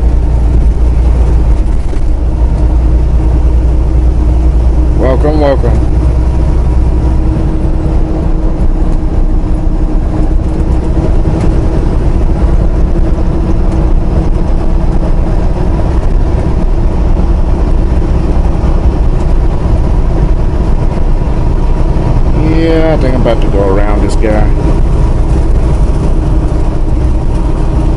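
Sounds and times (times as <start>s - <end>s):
road noise: 0.0s - 27.9s
truck engine drone: 0.0s - 27.9s.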